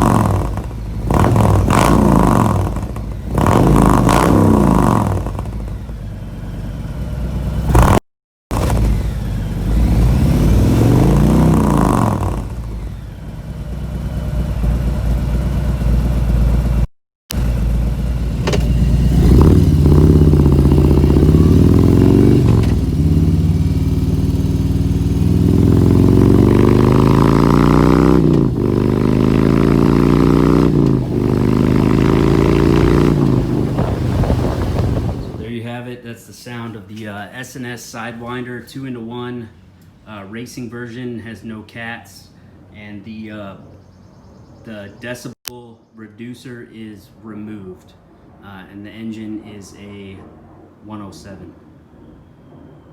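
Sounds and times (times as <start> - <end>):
motorcycle engine revving: 0.0 - 35.5.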